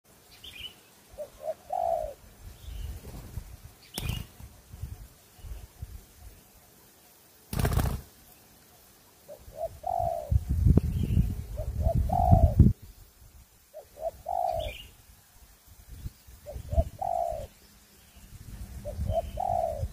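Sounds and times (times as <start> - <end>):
dove cooing: 1.1 - 2.3, 9.2 - 10.4, 11.4 - 12.8, 13.7 - 14.9, 16.4 - 17.6, 18.8 - 19.9.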